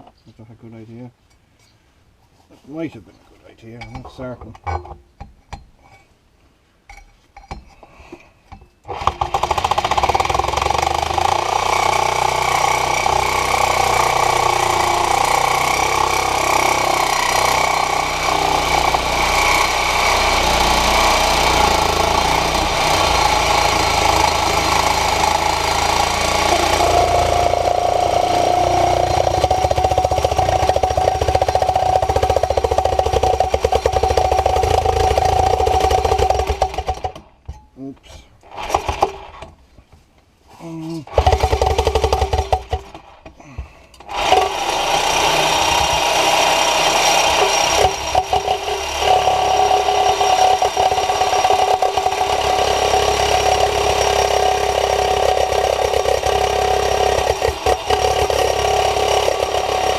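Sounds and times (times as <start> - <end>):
reciprocating saw cutting: 8.9 - 37.3, 38.4 - 39.5, 41.0 - 43.2, 44.0 - 59.9.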